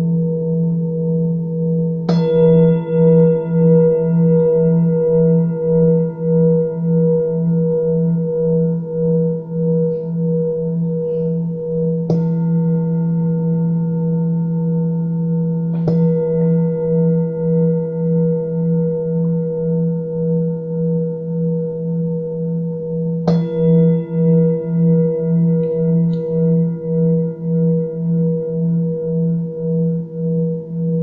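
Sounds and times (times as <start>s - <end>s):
singing bowl struck: 0.0s - 31.0s
singing bowls ringing: 0.0s - 31.0s.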